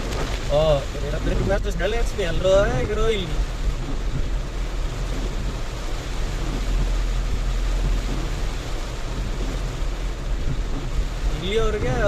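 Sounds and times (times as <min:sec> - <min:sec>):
car cabin road rumble: 0:00.0 - 0:12.0
rain and wet tyres hissing: 0:00.0 - 0:12.0.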